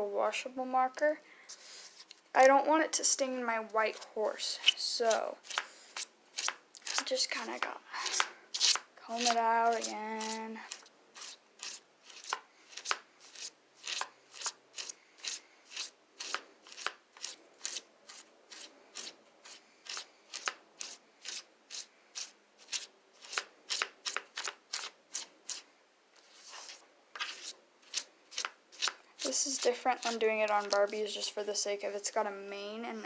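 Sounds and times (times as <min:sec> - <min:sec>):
comb strokes through wet mane: 0:08.1 - 0:22.4.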